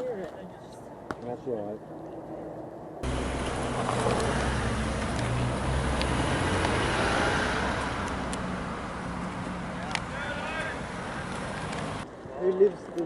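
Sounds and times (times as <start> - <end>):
street traffic noise: 0.0 - 13.0
vehicle engine running: 3.0 - 12.0.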